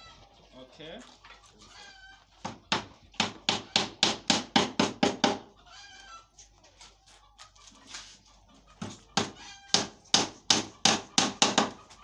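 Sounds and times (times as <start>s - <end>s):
hammer driving nails into wood: 9.8s - 11.8s.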